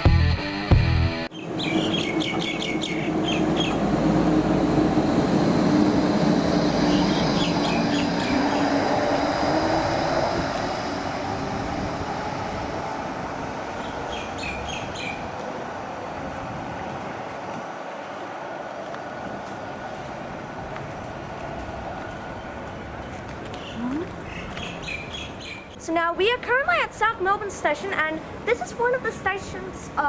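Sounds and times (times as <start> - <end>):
tram rumbling on rails: 1.3 - 30.0
high wheel squeaks: 1.4 - 15.4.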